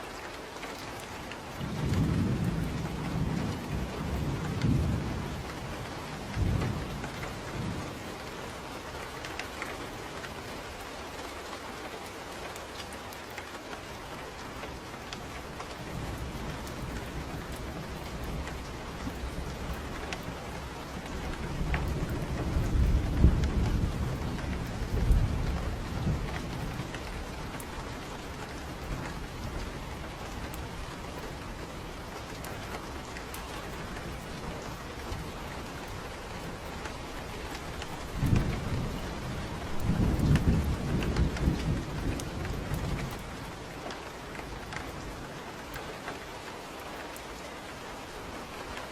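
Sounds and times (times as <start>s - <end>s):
steady rain falling: 0.0s - 48.9s
low rolls of thunder: 1.6s - 8.2s, 14.8s - 45.6s.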